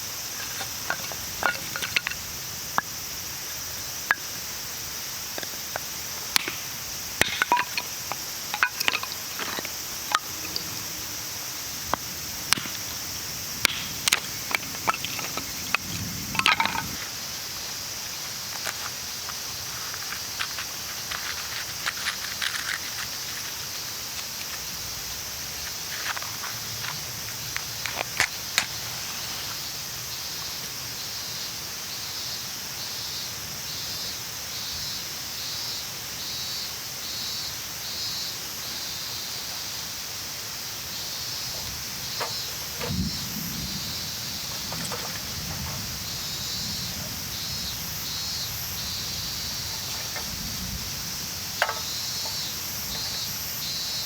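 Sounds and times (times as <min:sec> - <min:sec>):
steady high hiss: 0:00.0 - 0:54.0
light clicks and knocks: 0:51.6 - 0:53.2.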